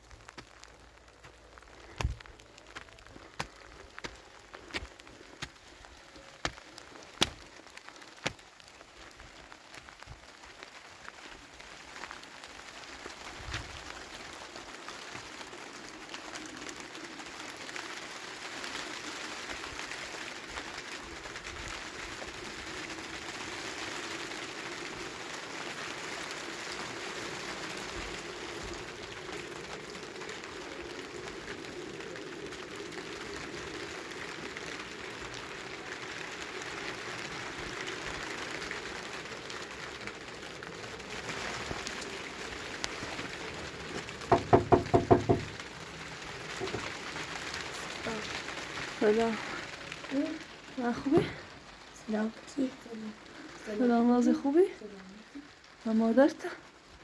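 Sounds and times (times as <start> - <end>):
rain falling: 0.0 - 57.0
sharp taps or drips: 44.0 - 45.6.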